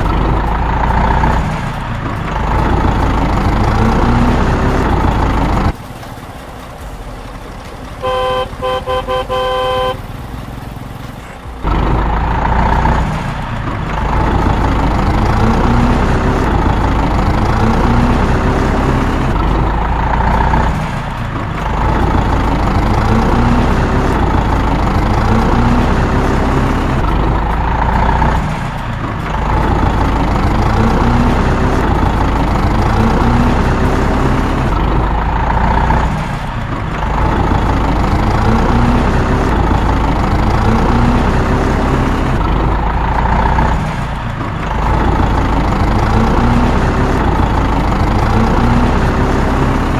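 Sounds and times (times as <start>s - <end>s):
vehicle engine: 0.0s - 49.9s
vehicle horn tooting: 8.0s - 10.2s.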